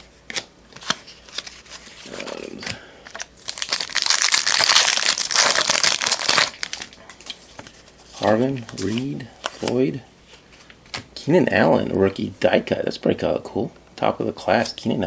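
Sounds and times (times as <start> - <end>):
wrapper tearing and crinkling: 3.1 - 7.0.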